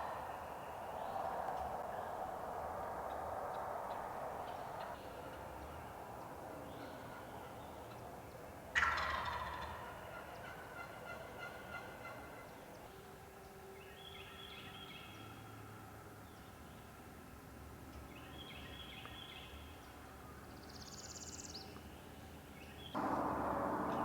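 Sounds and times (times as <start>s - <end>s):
turkey gobbling: 8.7s - 12.4s.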